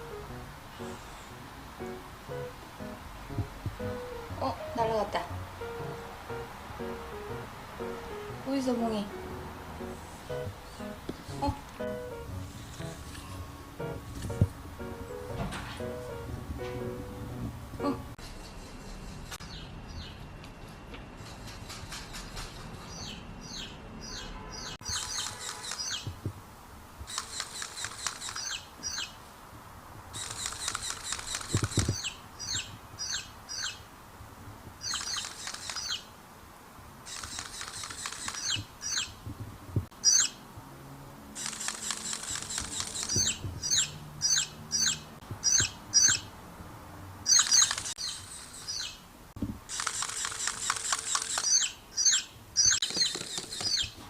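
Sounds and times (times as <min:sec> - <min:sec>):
baby chicks peeping: 0:22.9 - 0:26.2, 0:37.1 - 0:39.2, 0:41.8 - 0:46.3, 0:51.1 - 0:54.0.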